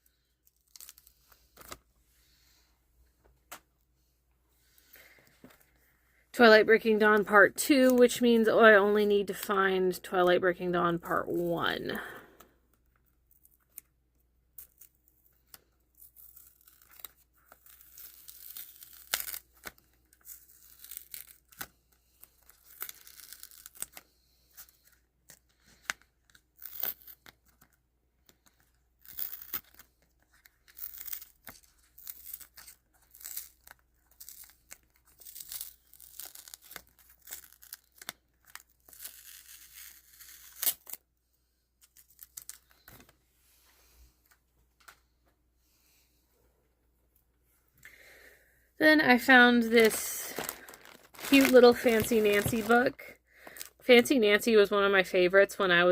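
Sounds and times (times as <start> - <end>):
tearing and crinkling: 0.0 - 1.8, 14.5 - 41.1, 41.8 - 43.1, 49.2 - 53.8.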